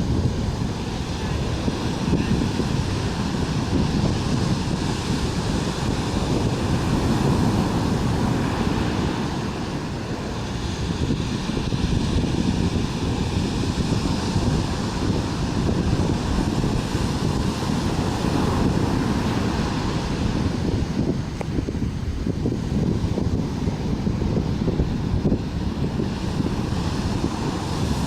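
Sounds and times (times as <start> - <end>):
ocean surf washing: 0.0 - 28.0
wind on microphone: 0.0 - 28.0.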